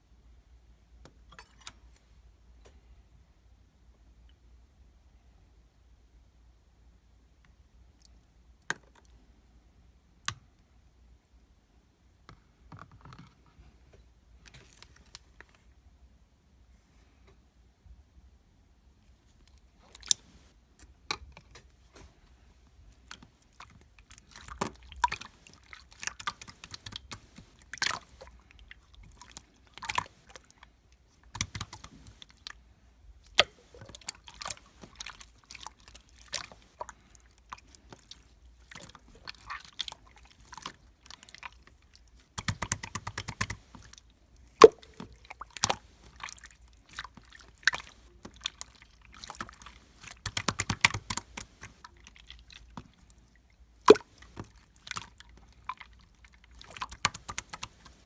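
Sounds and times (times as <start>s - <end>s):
crackling and clicking with wet pops: 22.9s - 58.0s.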